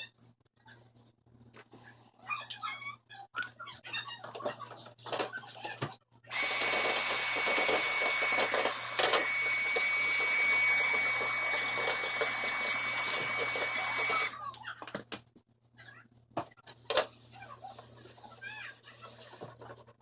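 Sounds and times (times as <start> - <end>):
small electric motor whining: 6.3 - 14.4.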